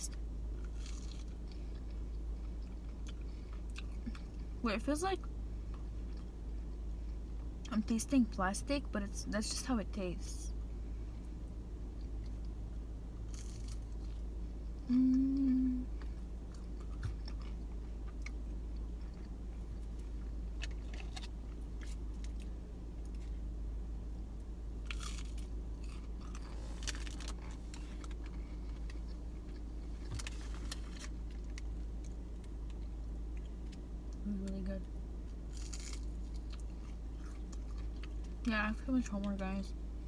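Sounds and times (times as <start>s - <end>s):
chewing and crunchy bites: 0.5s - 4.6s, 11.2s - 14.8s, 16.0s - 23.4s, 24.8s - 34.2s, 35.2s - 38.5s.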